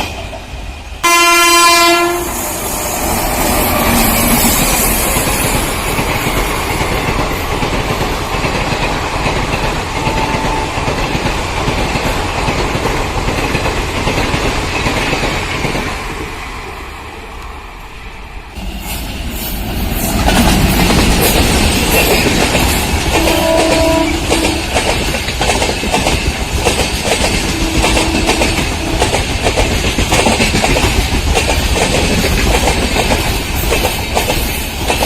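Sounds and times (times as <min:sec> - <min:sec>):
train horn blast: 0:01.0 - 0:03.1, 0:10.0 - 0:10.8, 0:23.1 - 0:24.7, 0:27.4 - 0:29.2
train wheels clattering over rails: 0:02.6 - 0:16.4, 0:18.6 - 0:35.0.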